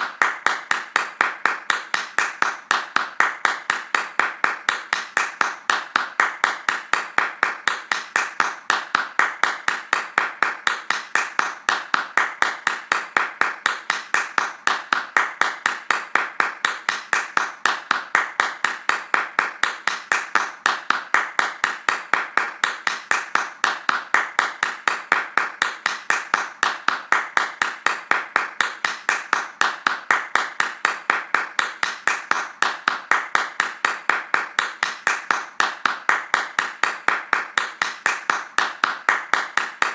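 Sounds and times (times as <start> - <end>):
hands clapping fast: 0.0 - 39.9.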